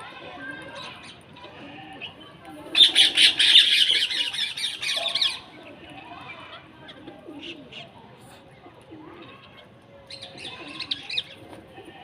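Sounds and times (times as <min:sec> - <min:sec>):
birds squawking: 0:02.8 - 0:05.5.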